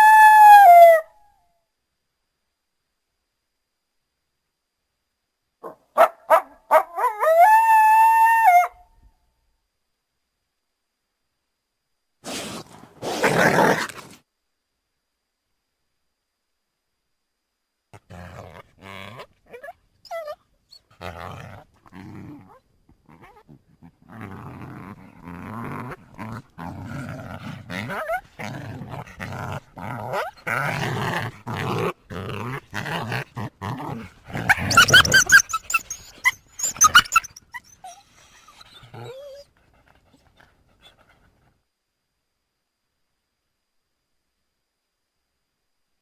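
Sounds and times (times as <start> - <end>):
coyotes growling and snarling: 12.2 - 14.2, 17.9 - 41.5
coyotes yelping and yipping: 19.1 - 21.0, 27.4 - 30.7, 34.4 - 41.5.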